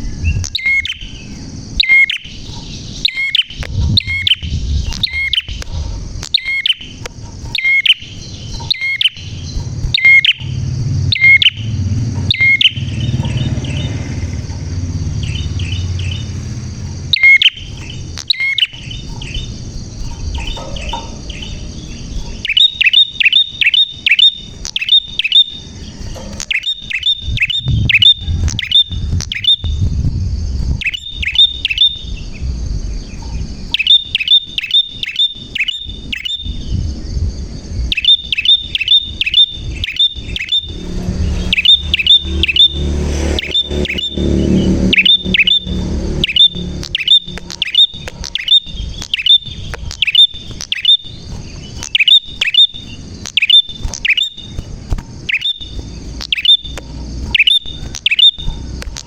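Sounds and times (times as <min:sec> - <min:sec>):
bird chirping: 0:00.0 - 0:59.0
low rumble: 0:02.4 - 0:22.5, 0:25.7 - 0:33.8, 0:38.6 - 0:49.9.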